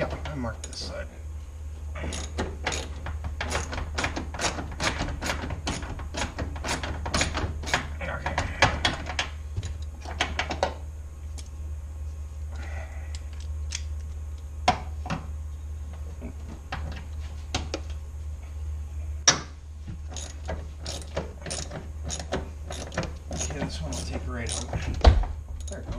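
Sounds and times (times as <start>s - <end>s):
steady low hum: 0.0s - 25.9s
hand tools clicking on metal: 2.0s - 7.9s, 20.1s - 24.8s.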